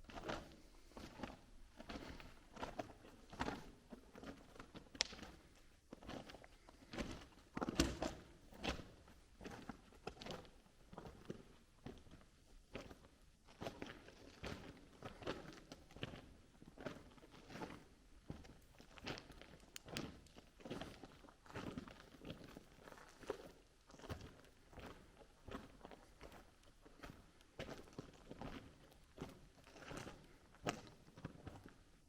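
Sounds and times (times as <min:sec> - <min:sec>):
faint footsteps walking slowly: 0:00.0 - 0:32.0.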